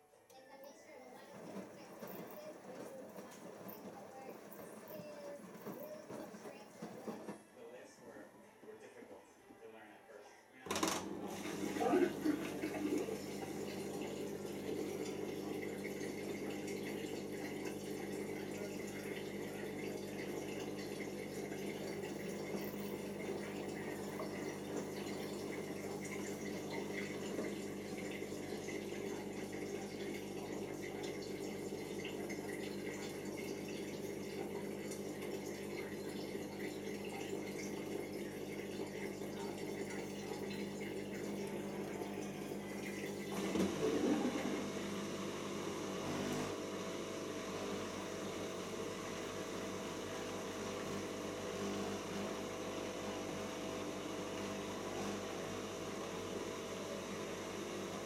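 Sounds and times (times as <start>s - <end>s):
washing machine spinning: 0.0s - 7.6s, 10.7s - 58.0s
water running out: 11.1s - 44.9s.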